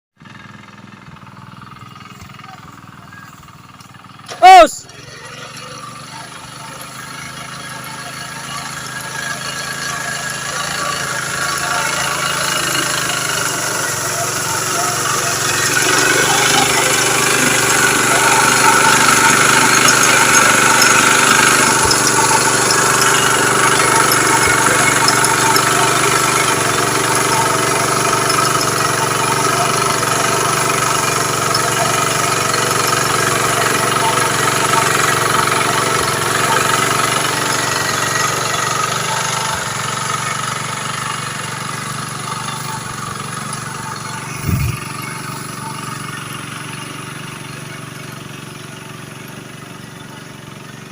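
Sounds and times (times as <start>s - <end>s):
small engine running: 0.2s - 50.9s.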